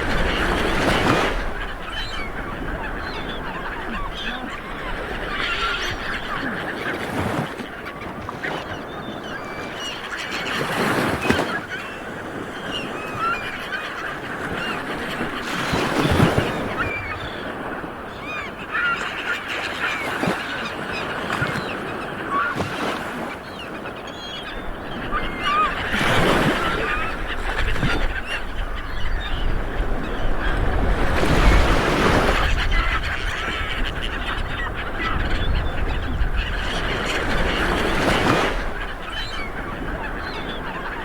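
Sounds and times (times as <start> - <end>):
bird calls: 0.0 - 41.0
waves washing onto beach: 0.0 - 41.0.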